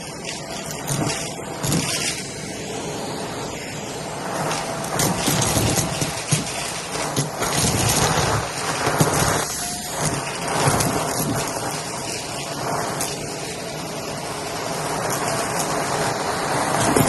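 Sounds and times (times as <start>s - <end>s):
vacuum cleaner running over carpet: 0.0s - 17.0s
beads crackling in vacuum nozzle: 4.3s - 17.0s.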